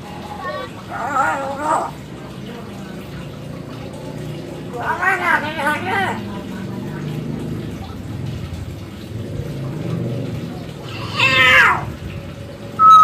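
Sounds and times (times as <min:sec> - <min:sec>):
low background murmur: 0:00.0 - 0:13.0
myna call falling in pitch: 0:12.8 - 0:13.0.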